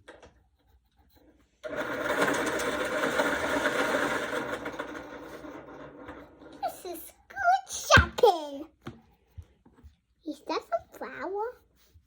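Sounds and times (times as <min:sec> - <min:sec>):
electric pencil sharpener grinding: 0:01.6 - 0:06.6.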